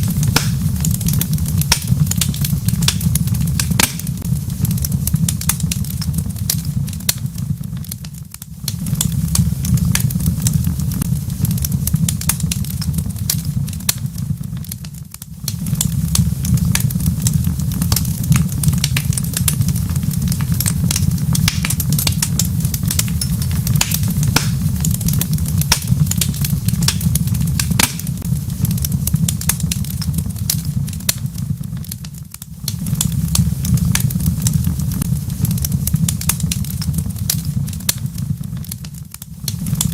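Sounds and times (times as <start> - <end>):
low rumble: 0.0 - 38.8
wood fire crackling: 0.0 - 39.9.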